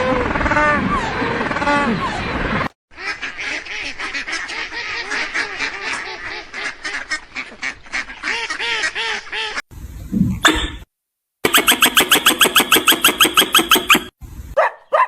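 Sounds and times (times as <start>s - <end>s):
ducks quacking: 0.1s - 9.6s.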